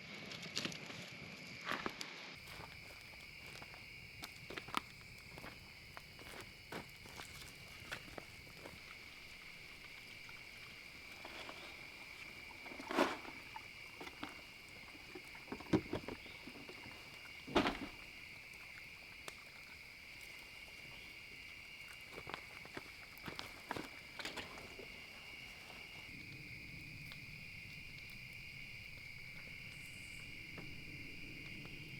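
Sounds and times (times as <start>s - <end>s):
insects trilling: 2.4s - 31.9s.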